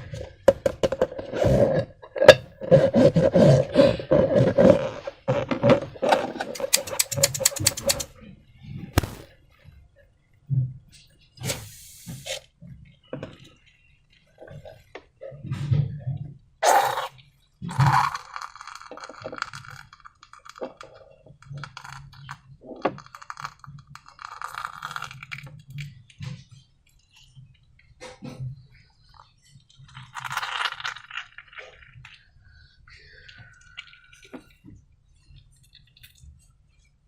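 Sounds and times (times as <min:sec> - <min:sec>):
slime crackling and clicking: 0:06.6 - 0:08.1.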